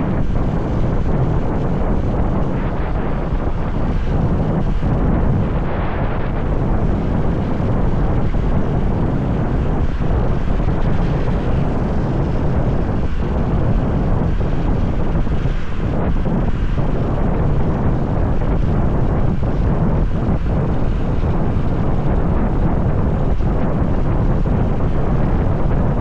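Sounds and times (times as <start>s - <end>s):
road noise: 0.0s - 26.0s
wind rush on microphone: 0.0s - 26.0s.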